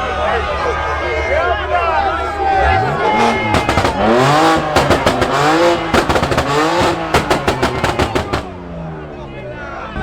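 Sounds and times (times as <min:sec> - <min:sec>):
car engine revving: 0:02.0 - 0:08.9
exhaust pops and crackles: 0:02.8 - 0:08.7.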